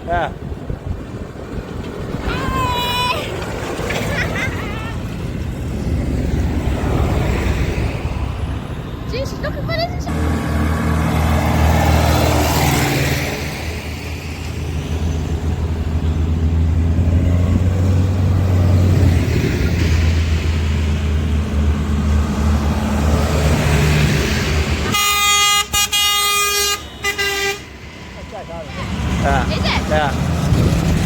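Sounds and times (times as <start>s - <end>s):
tractor diesel engines droning: 0.0s - 31.0s
loud horn blast: 24.8s - 27.8s.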